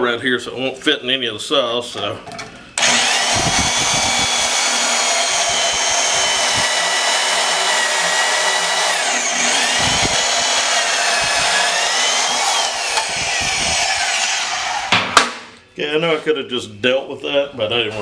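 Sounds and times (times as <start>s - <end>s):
angle grinder cutting steel: 2.8s - 14.9s.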